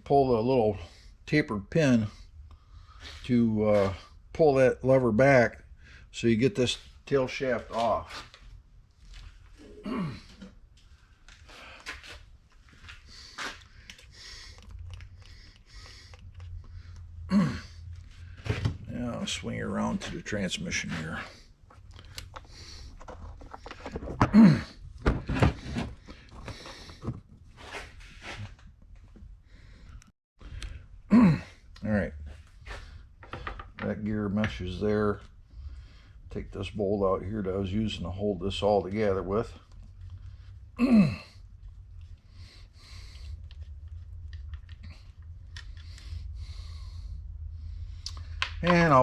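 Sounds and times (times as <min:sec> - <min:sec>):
steady low hum: 0:00.0 - 0:49.0
breath-like rustles: 0:09.1 - 0:18.7
grunt-like vocal sound: 0:09.6 - 0:10.4, 0:17.3 - 0:17.8, 0:24.2 - 0:24.8, 0:31.1 - 0:31.6, 0:40.8 - 0:41.4.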